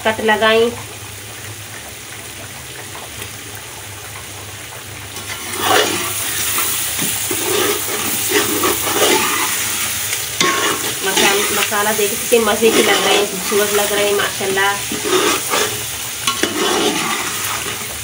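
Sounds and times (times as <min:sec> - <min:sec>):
food sizzling in hot oil: 0:00.0 - 0:18.0
ladle scraping and clinking pot: 0:05.2 - 0:09.8, 0:10.4 - 0:11.7, 0:12.6 - 0:14.0, 0:14.8 - 0:18.0.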